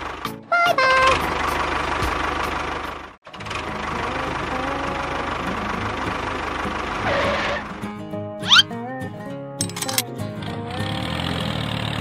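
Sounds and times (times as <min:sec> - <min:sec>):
small engine running: 0:01.1 - 0:07.7, 0:10.4 - 0:12.0.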